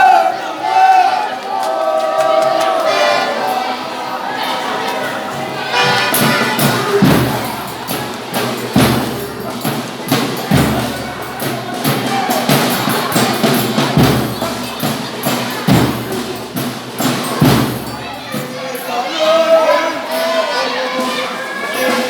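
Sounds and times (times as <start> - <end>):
tambourine jingles: 3.4 - 21.9
drum thumping: 5.4 - 18.4.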